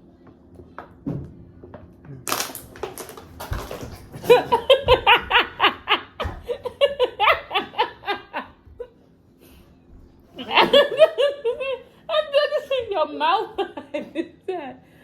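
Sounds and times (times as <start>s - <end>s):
person laughing hard: 4.2s - 8.9s, 10.4s - 12.9s.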